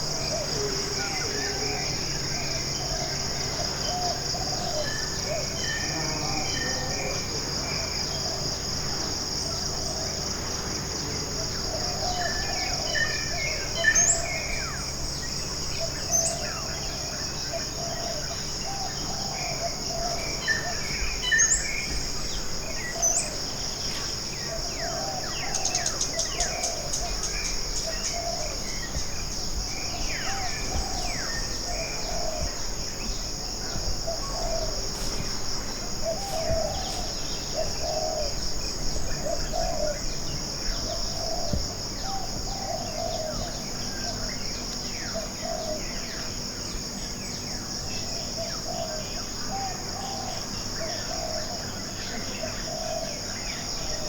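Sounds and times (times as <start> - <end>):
high-pitched insect buzz: 5.0 - 7.3.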